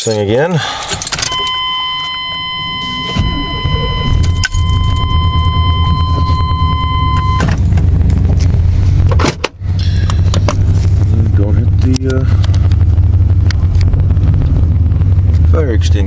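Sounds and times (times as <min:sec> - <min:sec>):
truck engine starting and idling: 0:00.6 - 0:16.0
dashboard warning chime: 0:01.2 - 0:07.7
exhaust leak ticking: 0:01.3 - 0:16.0.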